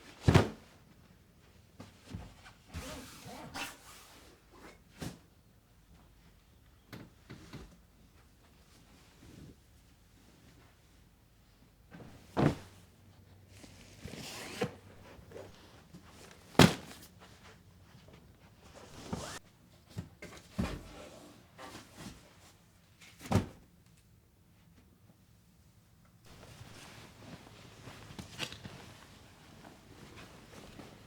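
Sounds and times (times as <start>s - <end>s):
rustling: 26.3s - 31.0s.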